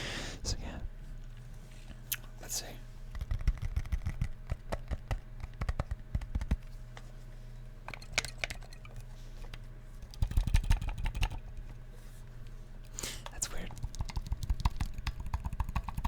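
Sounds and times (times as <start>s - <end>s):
low electrical hum: 0.0s - 16.0s
fingers tapping on effects pedal: 10.1s - 11.6s, 13.7s - 16.0s.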